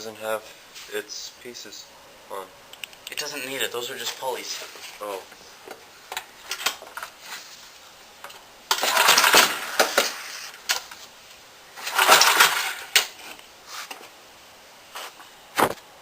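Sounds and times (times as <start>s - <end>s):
recoil starter pulls rasping: 8.7s - 10.2s, 11.8s - 13.1s.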